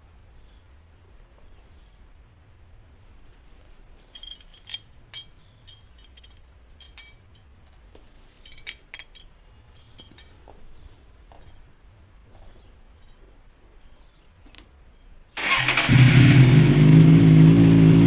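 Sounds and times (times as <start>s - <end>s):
faint steady high hiss: 0.0s - 17.9s
light metallic clinks and taps: 4.0s - 13.4s.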